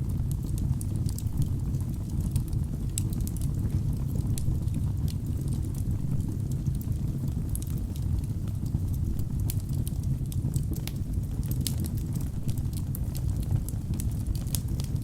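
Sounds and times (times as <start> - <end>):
fire rumbling: 0.0 - 15.0
logs crackling and popping: 4.2 - 14.9.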